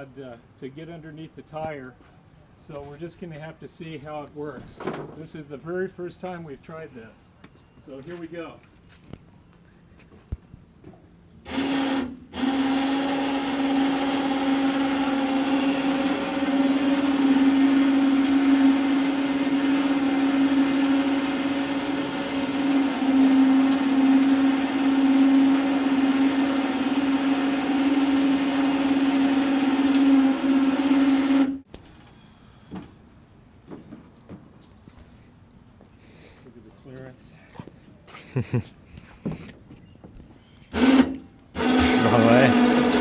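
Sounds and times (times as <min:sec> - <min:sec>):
electric winch motor whine: 0:11.4 - 0:32.8, 0:40.7 - 0:43.0.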